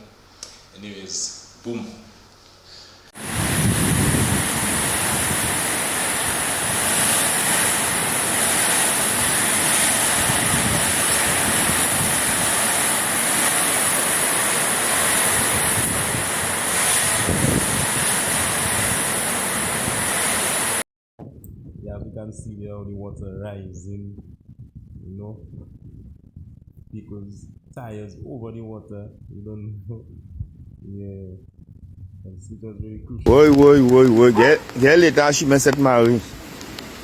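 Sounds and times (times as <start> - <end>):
heavy rain: 3.2 - 20.8, 33.3 - 37.0
wind: 3.2 - 37.0.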